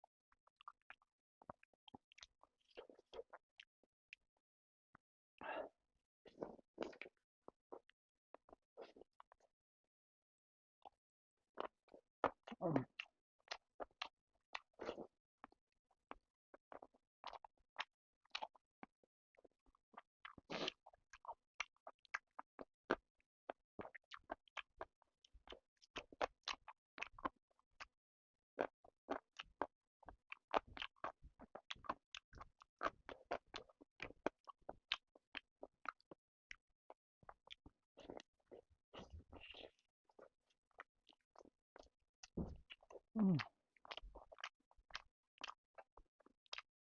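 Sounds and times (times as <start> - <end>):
chewing with wet mouth clicks: 0.4 - 4.2, 6.3 - 9.5, 11.6 - 28.0, 28.6 - 46.7.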